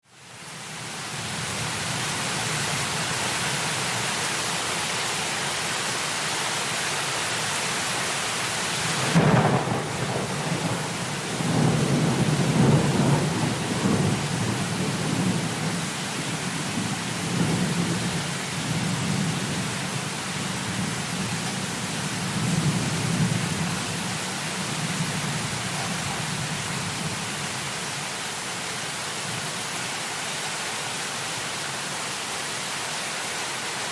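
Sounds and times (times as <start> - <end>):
heavy rain: 0.0 - 33.9
rolling thunder rumbling: 9.0 - 19.6
thunderclap: 9.1 - 15.7.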